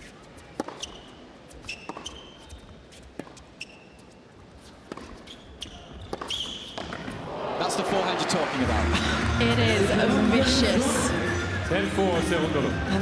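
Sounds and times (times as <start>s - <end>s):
shoes squeaking on court: 0.0s - 7.3s
tennis ball hits and bounces: 0.6s - 2.4s, 4.8s - 7.3s.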